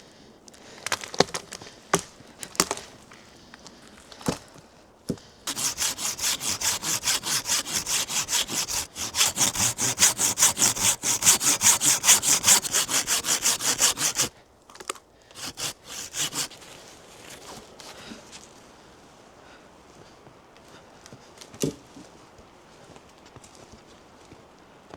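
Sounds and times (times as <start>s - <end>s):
hand saw cutting wood: 5.5s - 14.3s, 15.4s - 17.6s.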